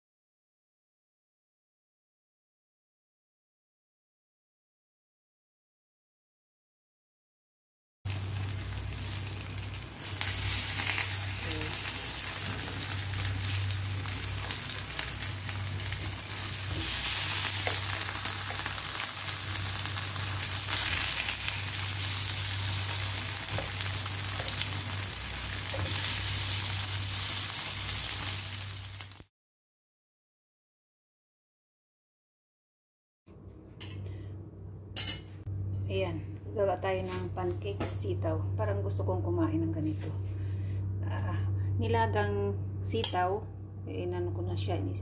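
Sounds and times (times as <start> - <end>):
pancakes sizzling in a pan: 8.1 - 29.2.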